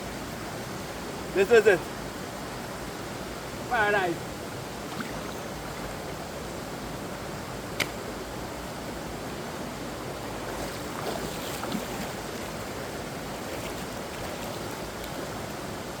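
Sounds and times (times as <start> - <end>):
water rushing: 1.0 - 16.0.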